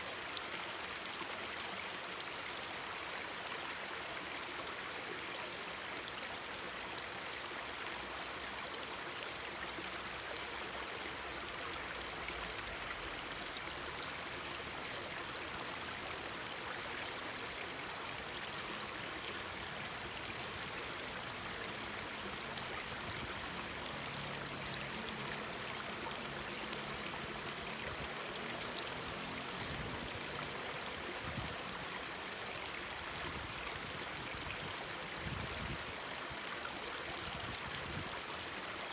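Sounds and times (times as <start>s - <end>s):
stream babbling over rocks: 0.0s - 38.9s
campfire popping: 22.9s - 25.6s.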